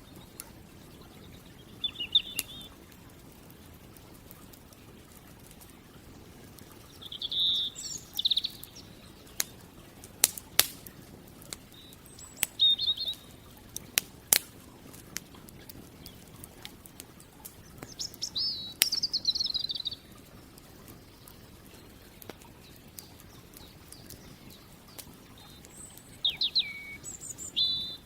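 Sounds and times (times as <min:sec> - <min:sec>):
campfire crackling and popping: 0:00.0 - 0:28.0
bird chirping and trilling: 0:01.0 - 0:02.7, 0:06.9 - 0:09.4, 0:11.7 - 0:13.4, 0:17.9 - 0:20.1, 0:22.6 - 0:28.0.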